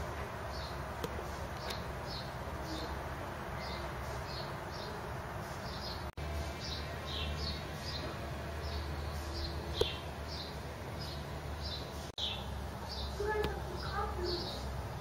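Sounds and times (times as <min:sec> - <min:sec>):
small bird chirping: 0:05.6 - 0:14.8.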